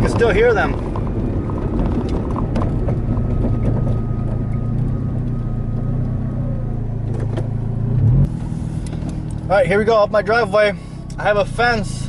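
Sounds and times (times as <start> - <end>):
suspension knocks: 0.0 - 5.4
car engine and road drone: 0.0 - 12.0.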